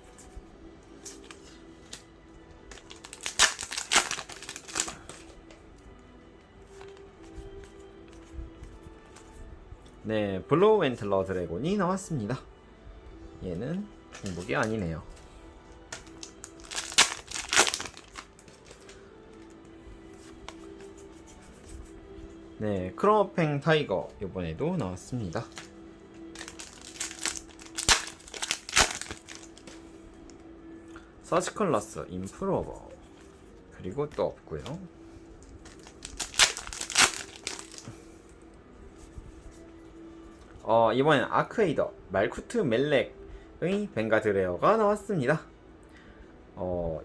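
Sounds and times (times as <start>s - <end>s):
trading cards and foil rustling: 0.0s - 10.0s, 13.5s - 23.1s, 23.8s - 40.6s
quiet background music: 0.0s - 47.0s
foil wrapper crinkling: 1.0s - 5.4s, 15.8s - 19.6s, 25.2s - 29.8s, 35.4s - 38.0s.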